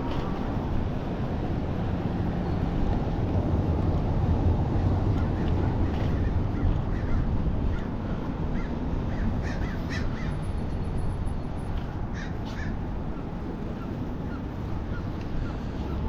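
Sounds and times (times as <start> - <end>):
steady low rumble: 0.0 - 16.0
birds cawing: 8.5 - 10.4, 12.1 - 12.8.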